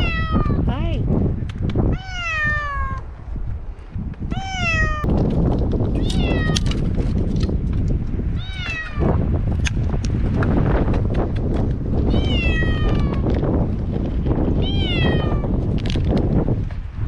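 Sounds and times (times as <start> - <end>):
cat meowing: 0.0 - 0.6, 1.9 - 3.0, 4.3 - 5.1, 6.0 - 6.6, 8.4 - 9.1, 12.1 - 13.2, 14.6 - 15.5.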